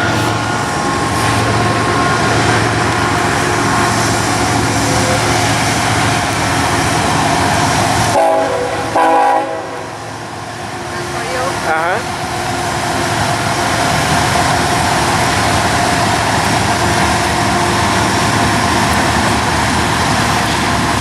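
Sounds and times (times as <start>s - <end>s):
freight train rumbling past: 0.0s - 21.0s
train horn chord: 8.1s - 10.0s.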